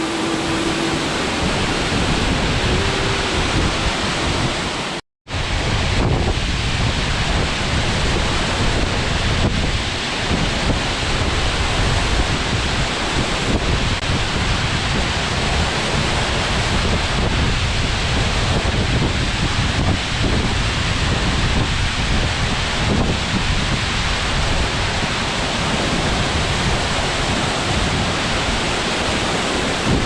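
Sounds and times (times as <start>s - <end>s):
waterfall rushing: 0.0s - 5.6s, 23.5s - 30.0s
wind buffeting microphone: 0.0s - 30.0s.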